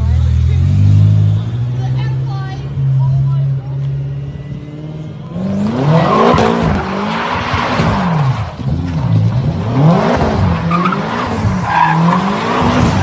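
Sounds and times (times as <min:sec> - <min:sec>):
car engine revving: 0:00.0 - 0:13.0
tyres squealing and skidding: 0:04.8 - 0:13.0.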